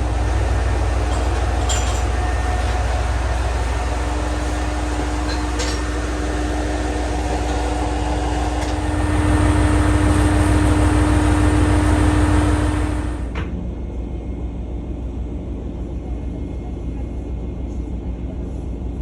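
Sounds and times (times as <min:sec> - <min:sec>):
diesel railcar rumbling: 0:00.0 - 0:14.5.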